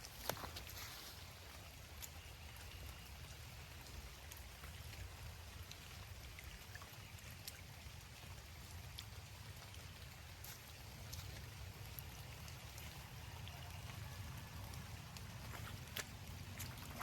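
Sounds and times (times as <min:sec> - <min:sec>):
faint running water: 0:00.0 - 0:17.0
water drips and splashes: 0:00.0 - 0:17.0.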